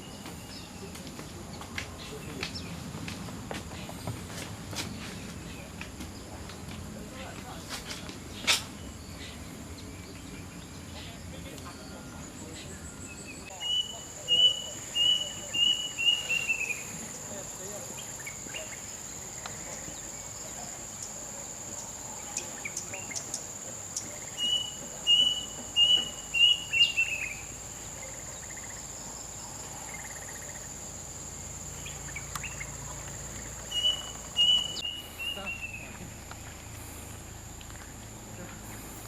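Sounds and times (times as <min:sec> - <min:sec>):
bird calling repeated notes: 0:33.4 - 0:35.9.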